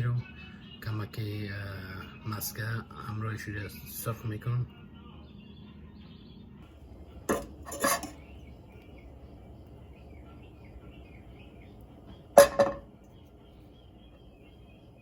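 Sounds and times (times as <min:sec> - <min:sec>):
utensil knocking against pan: 0:07.3 - 0:08.2, 0:12.4 - 0:12.9.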